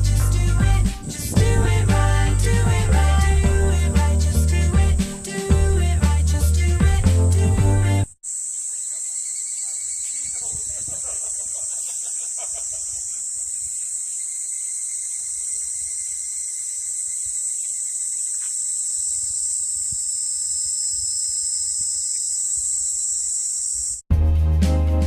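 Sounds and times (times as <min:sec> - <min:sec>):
faint low rumbling: 0:00.0 - 0:07.9
insects singing: 0:00.0 - 0:24.0.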